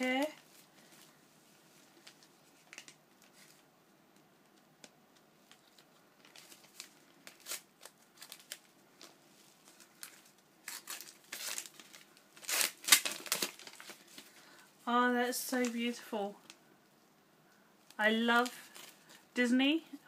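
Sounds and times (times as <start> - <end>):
packaging crinkling and tearing: 1.9 - 3.6, 5.4 - 14.6, 18.4 - 19.2.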